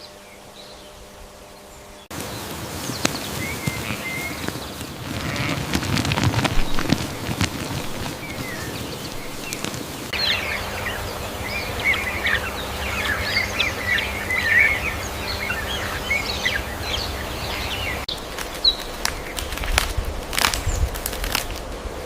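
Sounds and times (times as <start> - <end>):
many birds chirping: 0.0 - 19.8
faint steady hum: 0.0 - 22.0.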